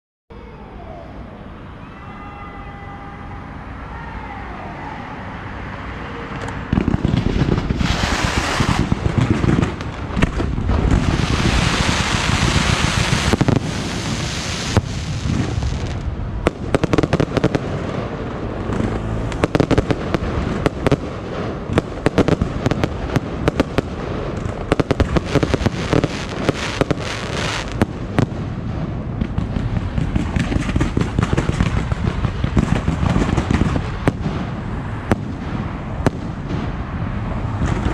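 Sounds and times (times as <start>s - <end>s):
fireworks booming: 6.6s - 37.9s
fireworks hissing: 6.8s - 18.3s, 19.4s - 28.6s.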